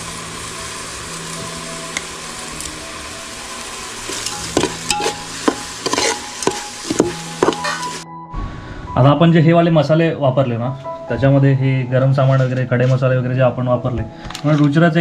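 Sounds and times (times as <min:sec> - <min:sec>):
masala sizzling in a pot: 0:00.0 - 0:08.0
steel spoon scraping pot: 0:04.6 - 0:07.9.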